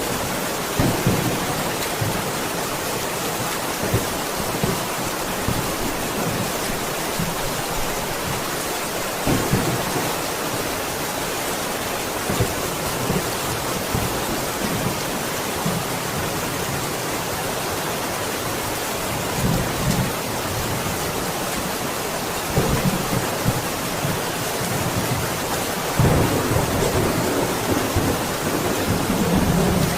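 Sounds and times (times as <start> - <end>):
heavy rain: 0.0 - 29.9
thunder rumbling: 22.5 - 29.9.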